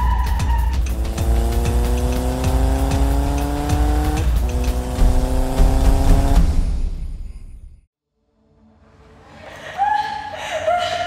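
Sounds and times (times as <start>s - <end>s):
car engine accelerating hard: 0.0s - 6.7s.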